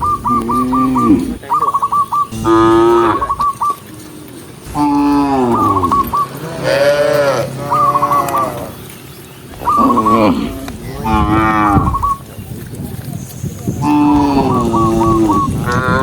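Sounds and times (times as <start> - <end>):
cattle mooing: 0.2 - 1.4, 2.3 - 8.8, 9.6 - 12.2, 13.8 - 16.0.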